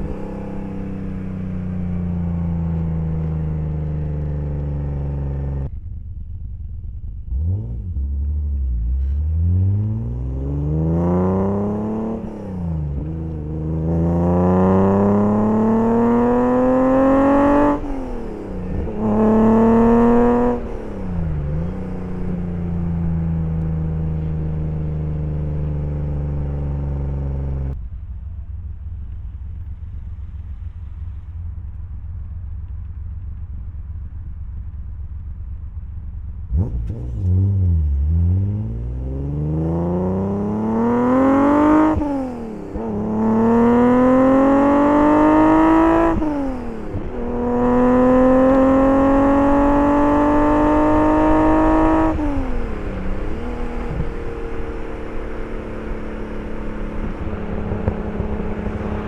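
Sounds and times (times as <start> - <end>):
car engine revving: 0.0 - 5.8, 7.1 - 27.8, 36.4 - 59.0.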